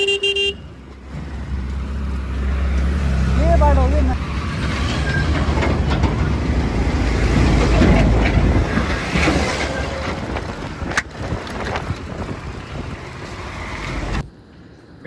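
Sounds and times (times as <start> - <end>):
motorcycle road and engine noise: 0.0 - 15.0
wind rushing over microphone: 4.1 - 14.3.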